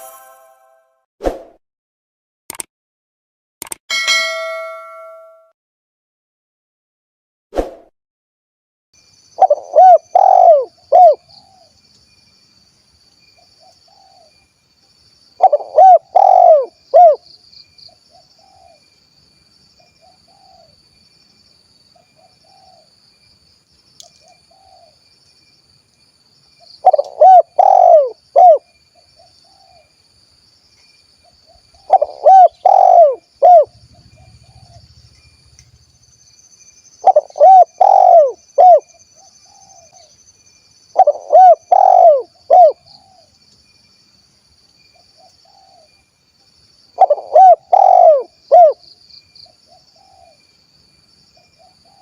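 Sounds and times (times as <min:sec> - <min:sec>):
faint high-pitched tone: 0:00.0 - 0:01.0
dove cooing: 0:09.4 - 0:11.7, 0:15.4 - 0:17.2, 0:26.8 - 0:28.6, 0:31.8 - 0:34.8, 0:37.0 - 0:38.8, 0:41.0 - 0:43.3, 0:47.0 - 0:48.8.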